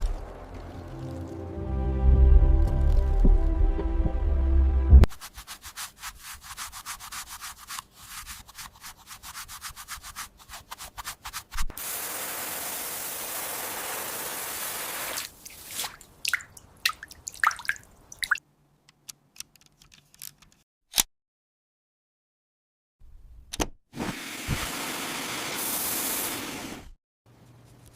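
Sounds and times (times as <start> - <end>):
rubbing strokes on toy car: 5.1 - 11.6.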